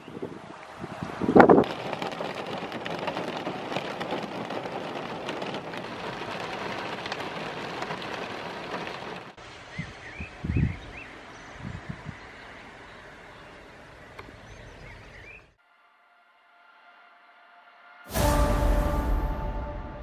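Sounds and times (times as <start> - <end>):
heavy rain falling: 0.6 - 14.3.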